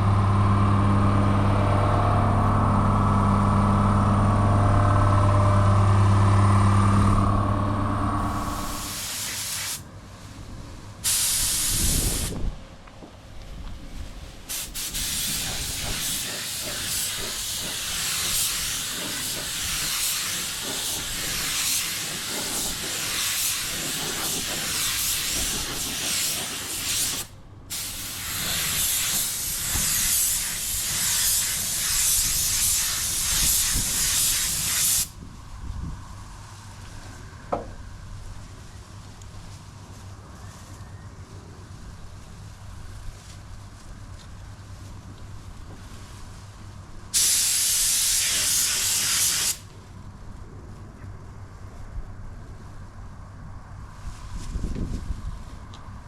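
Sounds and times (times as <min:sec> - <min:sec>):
compressed air hissing from air tool: 0:08.2 - 0:09.8, 0:11.0 - 0:12.4, 0:14.5 - 0:35.2, 0:47.1 - 0:49.7.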